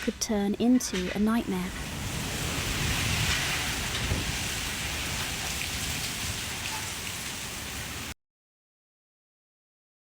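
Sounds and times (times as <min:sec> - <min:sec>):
heavy rain pouring: 0:01.1 - 0:08.2.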